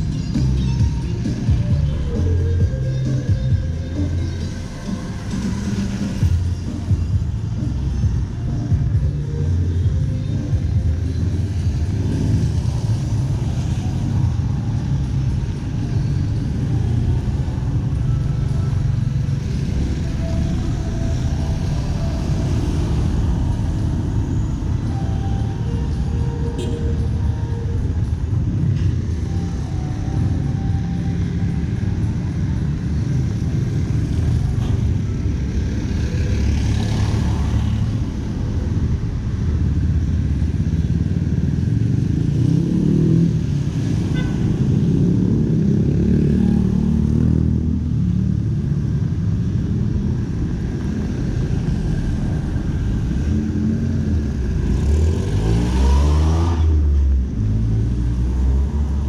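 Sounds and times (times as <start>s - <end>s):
car and motorcycle engines passing: 0.0s - 59.0s
engine revving up: 54.6s - 56.9s.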